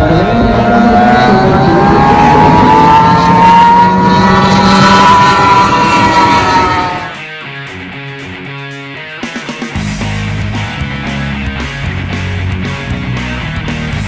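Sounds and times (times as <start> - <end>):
boat engine at full throttle: 0.0 - 7.2.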